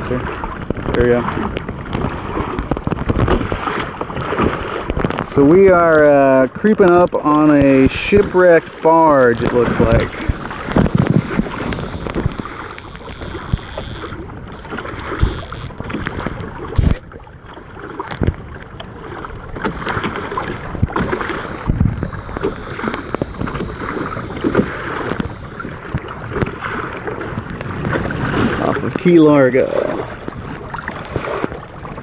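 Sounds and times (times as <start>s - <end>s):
water splashing against kayak hull: 0.0s - 32.0s.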